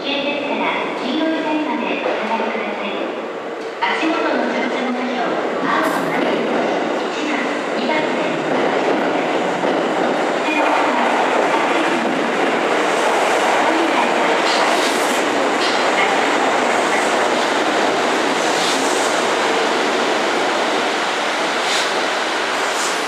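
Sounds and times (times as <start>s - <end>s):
train wheels rumbling and clacking: 5.3s - 23.0s.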